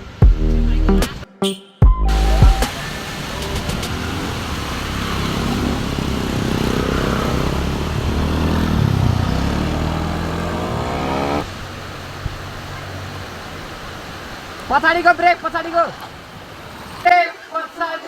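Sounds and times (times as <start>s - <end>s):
motor scooter engine running: 2.4s - 11.4s.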